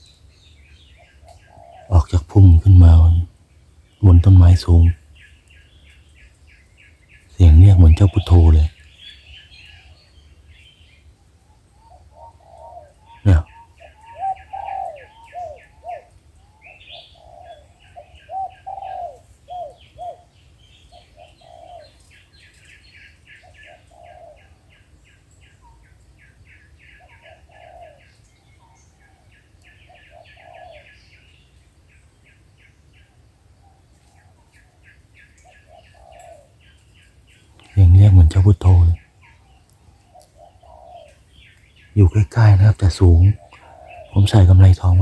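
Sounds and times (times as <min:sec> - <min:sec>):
doves cooing: 0:01.0 - 0:03.3, 0:07.4 - 0:08.7, 0:11.8 - 0:22.2, 0:23.3 - 0:24.6, 0:27.0 - 0:31.0, 0:35.4 - 0:36.6, 0:37.6 - 0:39.0, 0:39.8 - 0:45.0
bird chirping rapidly: 0:41.9 - 0:45.0.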